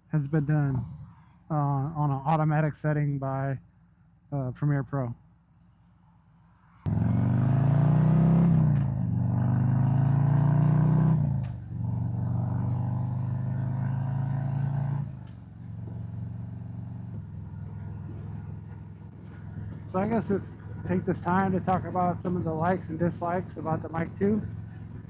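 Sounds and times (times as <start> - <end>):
motorcycle engine accelerating: 6.9 - 25.0.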